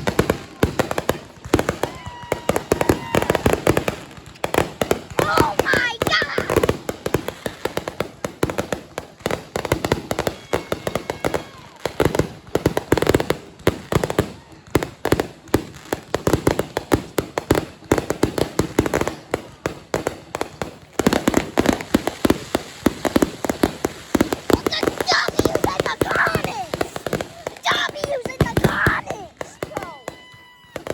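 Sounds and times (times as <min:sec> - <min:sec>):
fireworks popping and banging: 0:00.0 - 0:30.9.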